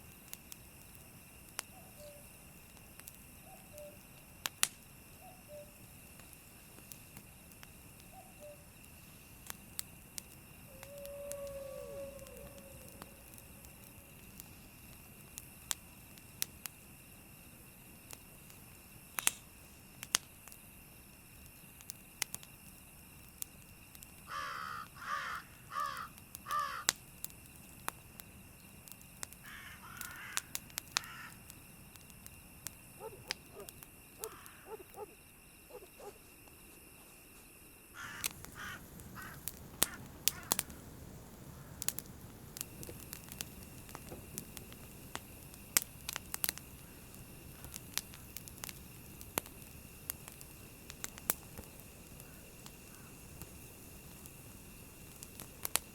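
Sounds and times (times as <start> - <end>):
background hiss: 0.0 - 55.9
campfire crackling: 0.0 - 55.9
crow cawing: 24.3 - 26.9, 29.5 - 31.4, 34.2 - 34.9, 38.0 - 40.7.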